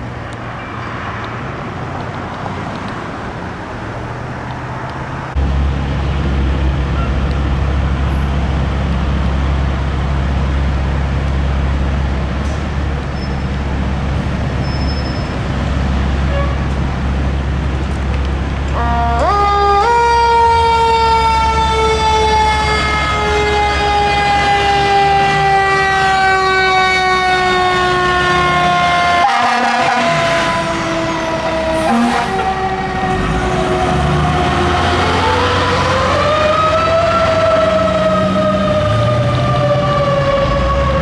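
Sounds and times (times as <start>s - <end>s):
fire truck engine rumbling: 0.0s - 41.0s
street traffic: 0.0s - 41.0s
fire truck siren winding up: 18.6s - 41.0s.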